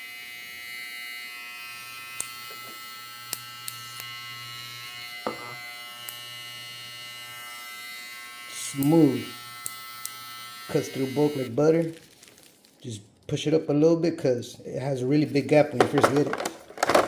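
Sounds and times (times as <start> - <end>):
hair clipper whine: 0.0 - 11.6.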